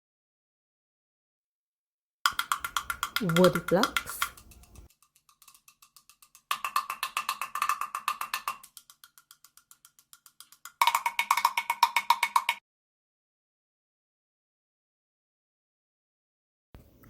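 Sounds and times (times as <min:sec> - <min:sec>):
wood blocks struck rhythmically: 0:02.3 - 0:12.6.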